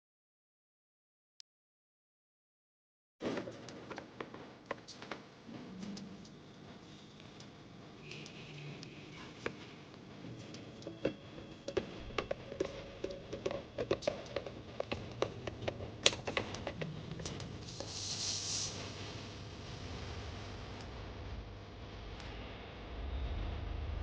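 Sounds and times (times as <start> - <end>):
small parts clicking and tapping: 10.5 - 17.5
short hiss: 17.6 - 18.8.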